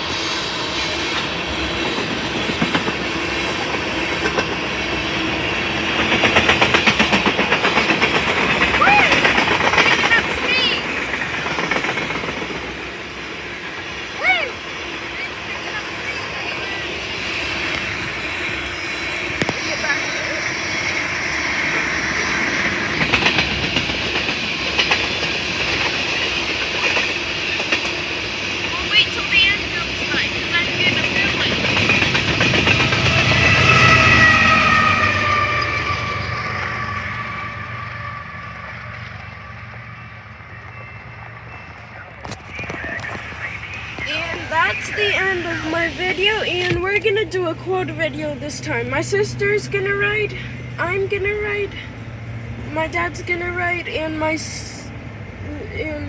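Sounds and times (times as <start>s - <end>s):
train wheels rumbling on rail: 0.0s - 56.0s
wheels clicking over rail joints: 1.3s - 37.3s, 41.7s - 50.4s.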